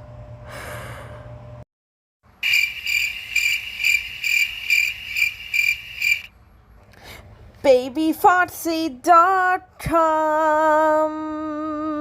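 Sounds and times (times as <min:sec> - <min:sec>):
cricket chirping: 0:02.4 - 0:06.3.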